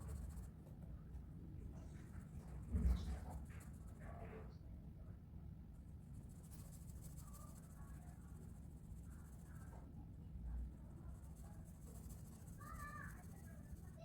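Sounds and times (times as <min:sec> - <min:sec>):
coloring scratching on paper: 0:06.2 - 0:09.7, 0:10.9 - 0:14.0.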